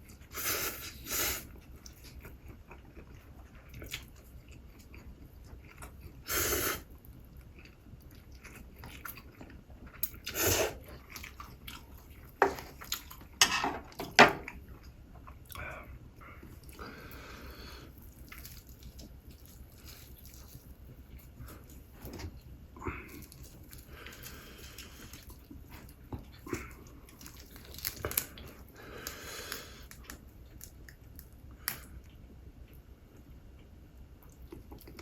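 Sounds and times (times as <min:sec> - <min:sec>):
chewing and biting food: 0:01.5 - 0:06.2, 0:07.0 - 0:13.4, 0:17.9 - 0:22.4, 0:23.0 - 0:32.8.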